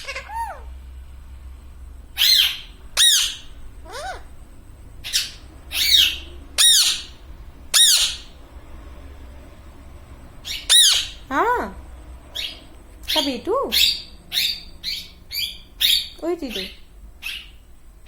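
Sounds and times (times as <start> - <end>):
parrot harsh calls: 0.0 - 0.8, 2.2 - 4.4, 5.0 - 8.4, 10.4 - 11.3, 12.3 - 17.6.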